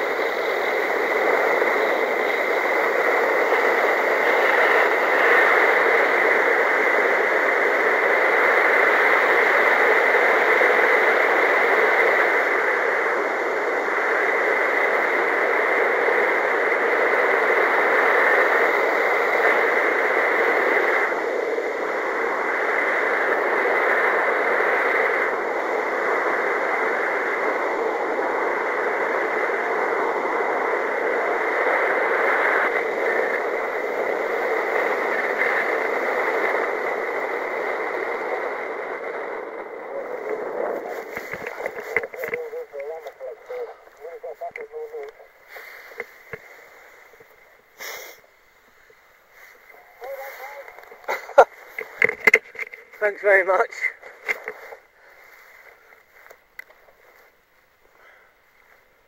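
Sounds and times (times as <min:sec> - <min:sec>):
air rushing over microphone: 0:30.7 - 0:58.3.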